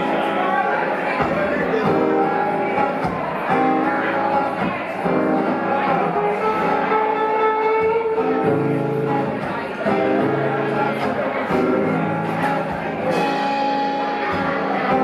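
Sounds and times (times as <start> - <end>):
guitar ringing notes: 0.0 - 15.0
rock band playing: 0.0 - 15.0.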